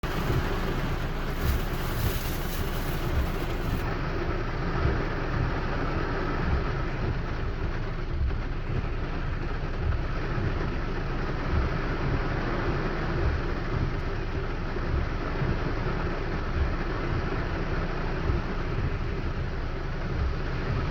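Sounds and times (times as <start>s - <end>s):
deep rumble: 0.0s - 20.9s
steady rain falling: 0.0s - 20.9s.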